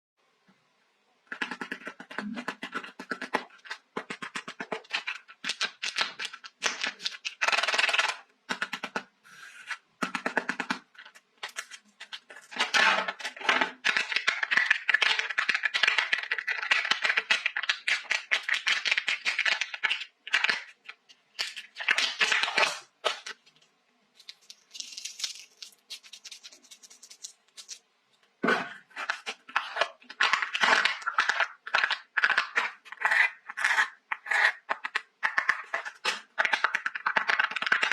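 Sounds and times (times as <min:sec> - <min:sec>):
wrappers crinkling and tearing: 0:24.2 - 0:27.8.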